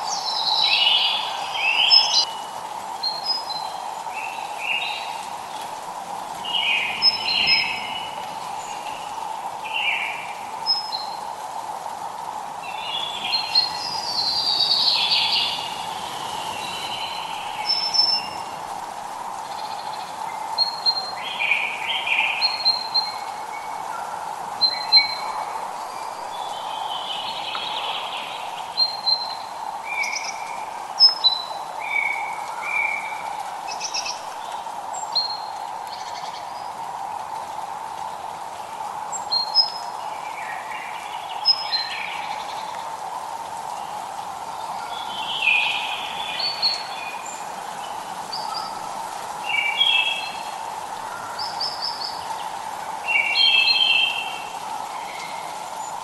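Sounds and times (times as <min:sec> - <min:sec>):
birds chirping and singing: 0:00.0 - 0:02.4, 0:06.4 - 0:11.2, 0:12.6 - 0:18.6
hiss of drizzle: 0:00.0 - 0:56.0.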